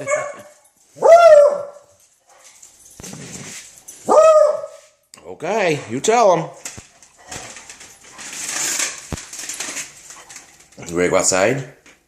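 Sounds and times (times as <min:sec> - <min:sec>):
dog barking high-pitched: 0:00.0 - 0:01.9, 0:04.0 - 0:04.8.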